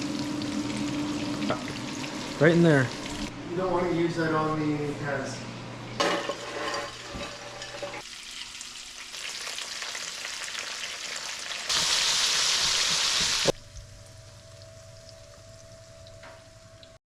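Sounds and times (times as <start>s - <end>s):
fish sizzling in hot oil: 8.0s - 13.6s.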